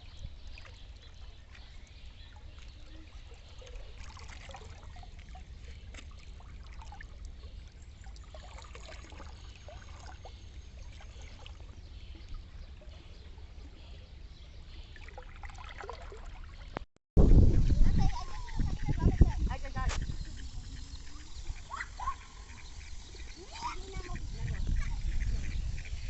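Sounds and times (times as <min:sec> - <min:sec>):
water trickling and gurgling: 0:00.0 - 0:16.8, 0:17.4 - 0:26.0
steady low rumble: 0:17.2 - 0:26.0.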